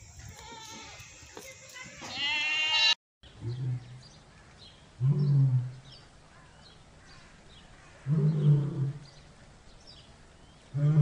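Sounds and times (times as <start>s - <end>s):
lion grunting: 8.0s - 9.1s.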